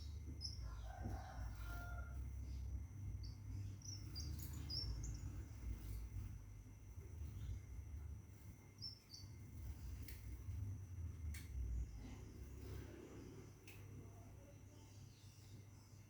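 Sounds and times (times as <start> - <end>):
steady high whine: 0.0 - 14.8
bird high chirping calls: 3.2 - 6.0.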